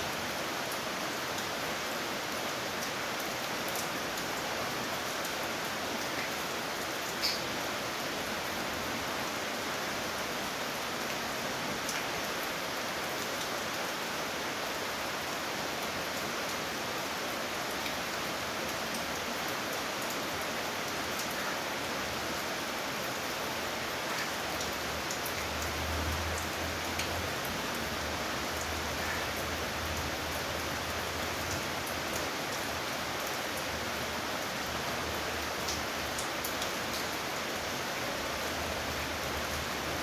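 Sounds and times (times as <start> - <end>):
rain pattering: 17.5 - 40.0.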